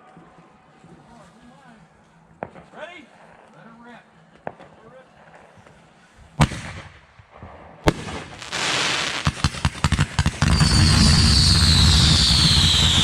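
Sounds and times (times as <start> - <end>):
fireworks bangs: 6.4 - 13.0
fireworks crackling: 7.9 - 13.0
fireworks whistle falling: 10.4 - 13.0.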